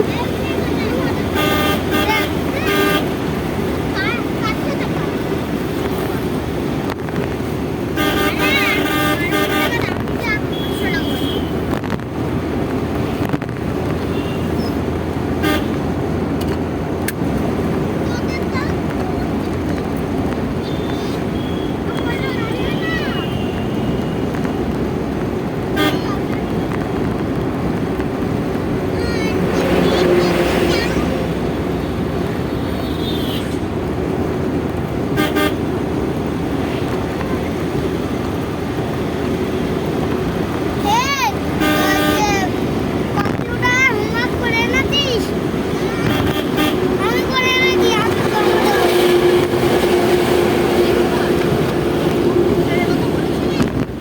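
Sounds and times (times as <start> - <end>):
car driving on highway: 0.0 - 54.0
van road and engine rumble: 0.0 - 54.0
vehicle horn toot: 1.3 - 3.2, 8.0 - 11.6, 14.0 - 14.7, 15.4 - 15.8, 20.6 - 24.4, 25.7 - 26.2, 32.5 - 33.6, 35.1 - 35.6, 41.6 - 42.4, 46.0 - 46.9.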